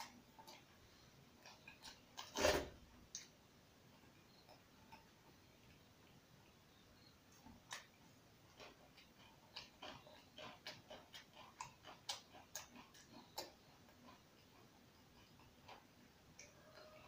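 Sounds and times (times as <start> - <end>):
person chewing and lip-smacking: 8.5 - 17.0.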